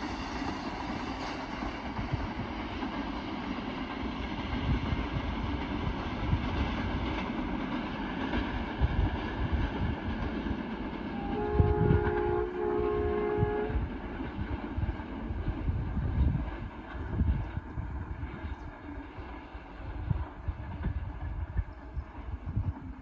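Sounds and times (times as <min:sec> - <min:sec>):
passenger train rumbling: 0:00.0 - 0:23.0
locomotive horn blasts: 0:11.1 - 0:13.9.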